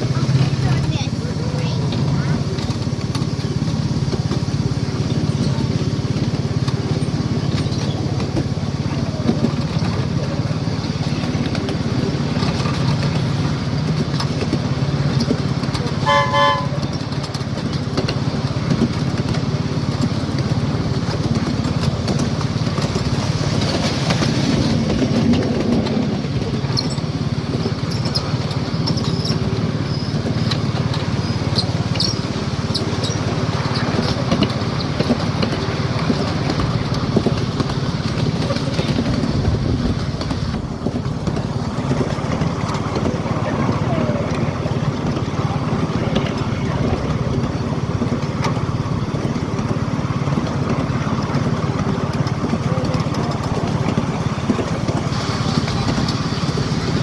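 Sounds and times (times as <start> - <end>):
miniature locomotive humming: 0.0 - 57.0
train whistle toot: 15.9 - 17.2.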